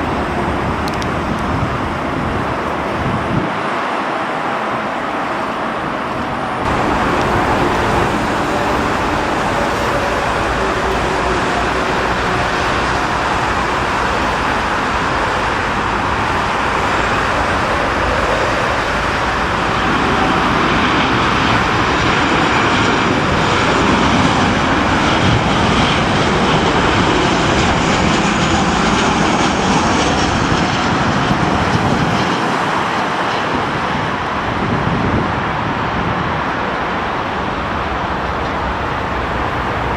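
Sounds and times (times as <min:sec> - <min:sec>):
high engine whine: 0:00.0 - 0:39.9
jet airliner engines roaring: 0:00.0 - 0:39.9.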